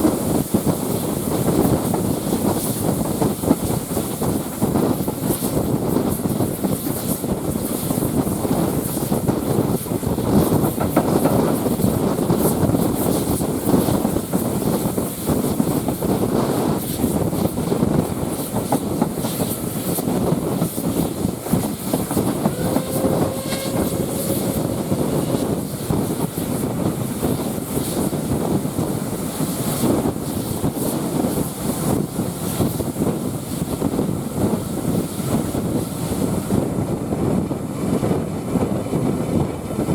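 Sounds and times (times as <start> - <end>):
train rumbling: 0.0 - 36.6
faint brief tone: 22.5 - 25.5.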